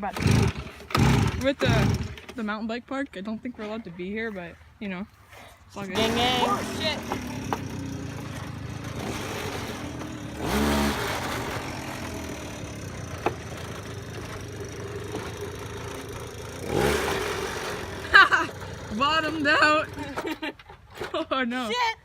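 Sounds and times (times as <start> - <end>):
mini bike engine revving: 0.0 - 2.4, 5.9 - 20.5
rattling: 5.9 - 21.3.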